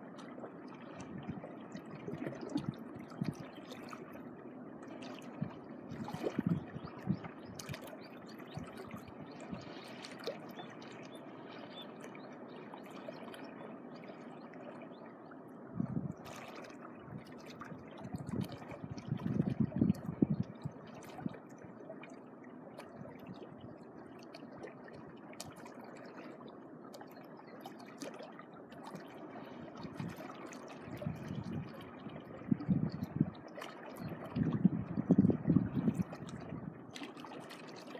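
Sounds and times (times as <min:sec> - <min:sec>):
small waves lapping at shoreline: 0:00.0 - 0:37.9
wind buffeting microphone: 0:05.4 - 0:07.6, 0:15.8 - 0:16.2, 0:18.0 - 0:20.6, 0:30.9 - 0:33.3, 0:34.0 - 0:36.8.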